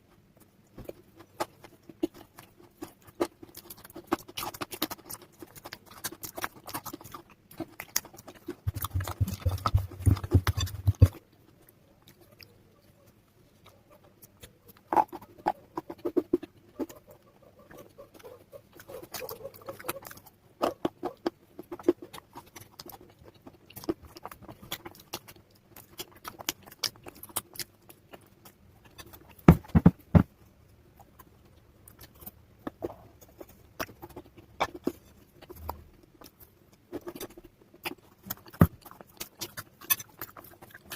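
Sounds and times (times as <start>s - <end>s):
dried clay and chalk cracking: 0.0s - 40.9s.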